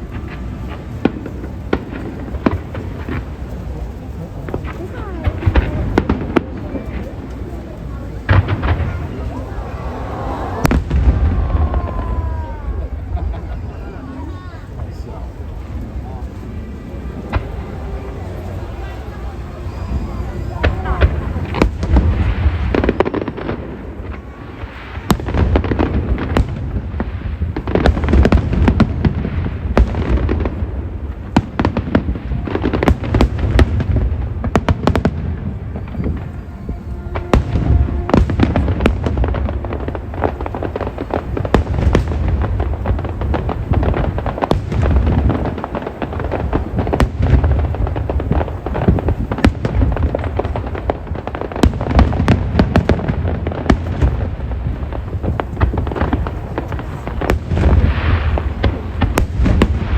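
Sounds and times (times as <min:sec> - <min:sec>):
fireworks booms and cracks: 0:00.0 - 0:59.9.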